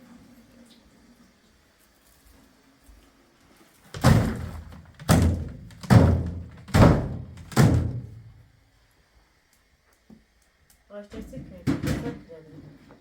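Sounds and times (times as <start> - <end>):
heavy thuds: 4.0 - 8.3.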